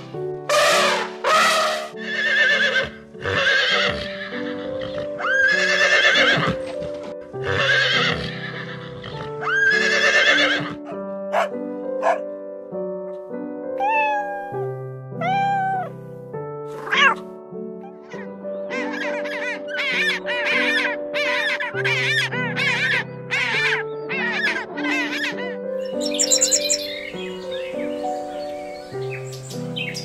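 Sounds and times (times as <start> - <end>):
background music: 0.0 - 30.0
horse whinnying: 1.5 - 6.6, 7.4 - 10.8
cat meowing: 13.8 - 15.9.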